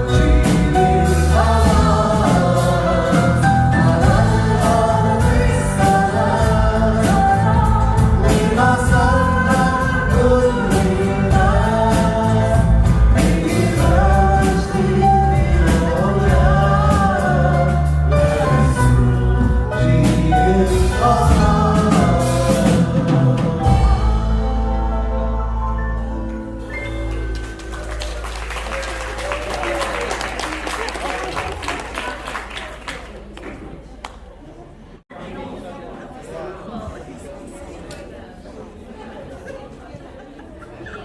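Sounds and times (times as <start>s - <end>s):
choir singing in harmony: 0.0s - 26.6s.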